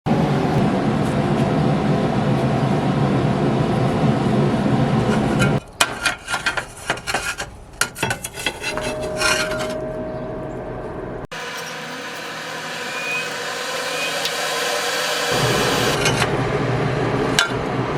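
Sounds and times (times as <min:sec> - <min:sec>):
ringing note: 0:08.7 - 0:10.7.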